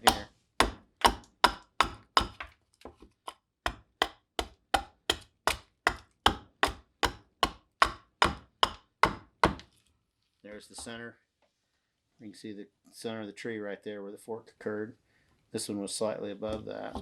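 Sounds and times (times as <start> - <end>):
hatchet chopping wood: 0.0 - 9.7.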